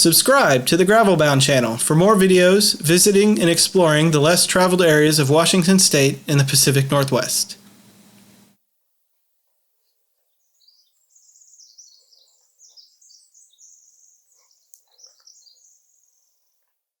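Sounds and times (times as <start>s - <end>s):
faint songbird chirping: 9.8s - 16.8s.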